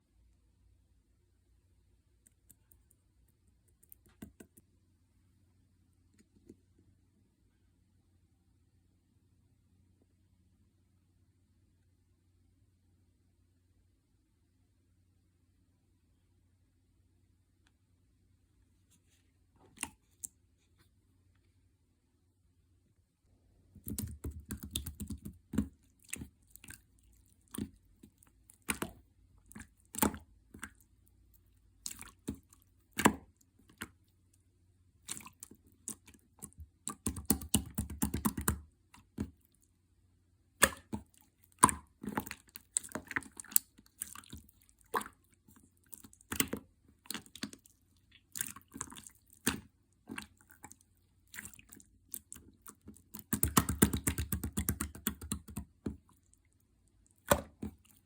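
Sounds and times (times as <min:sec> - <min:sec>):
slime squished by hand: 0:23.7 - 0:34.1, 0:35.0 - 0:39.6, 0:40.5 - 0:58.0.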